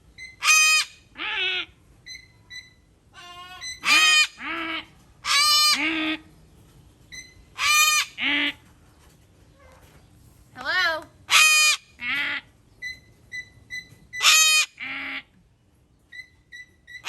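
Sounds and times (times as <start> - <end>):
parrots squawking: 0.2 - 2.3, 3.2 - 6.3, 7.6 - 8.6, 11.3 - 12.5, 14.1 - 15.3.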